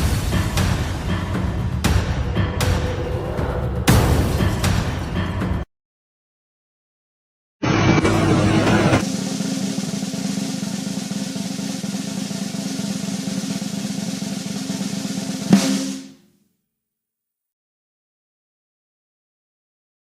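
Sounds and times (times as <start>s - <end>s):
snare drum roll: 1.8s - 5.0s, 8.0s - 16.2s.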